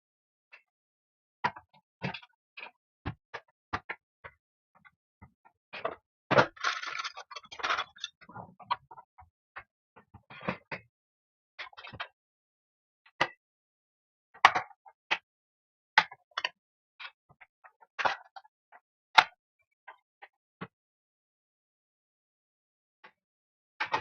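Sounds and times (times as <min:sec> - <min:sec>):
plastic housing clicks and knocks: 0:06.4 - 0:08.1.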